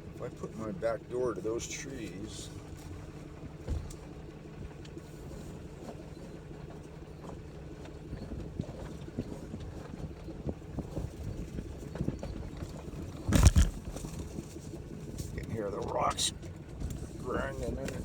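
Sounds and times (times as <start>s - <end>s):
low engine hum: 0.0s - 18.0s
rocks crunching under tires: 5.6s - 18.0s.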